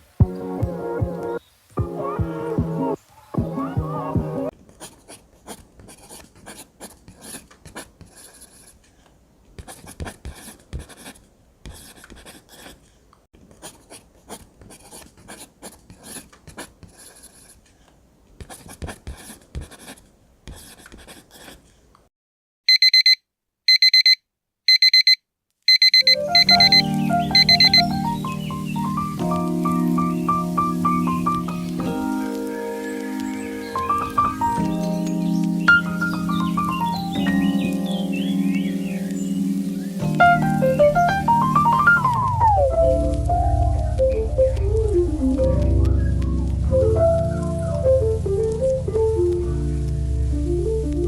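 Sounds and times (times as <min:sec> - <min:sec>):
lo-fi background music: 0:00.2 - 0:04.5, 0:26.1 - 0:51.0
pen scratching on paper: 0:09.6 - 0:12.8, 0:13.6 - 0:17.6, 0:18.4 - 0:21.6
digital alarm clock beeps: 0:22.7 - 0:28.1.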